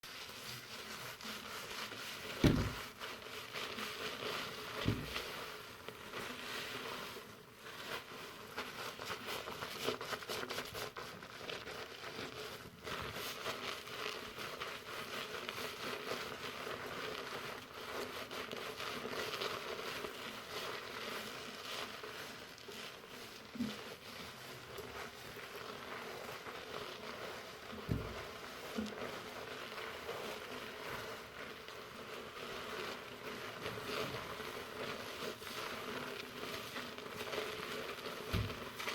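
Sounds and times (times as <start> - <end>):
shampoo lather rustling in hair: 0.0 - 38.9
short dull bumps: 2.4 - 2.8, 4.8 - 5.3.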